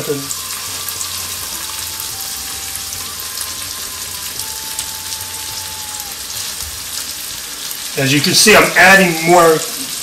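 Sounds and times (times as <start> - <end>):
food sizzling in a hot pan: 0.0 - 10.0.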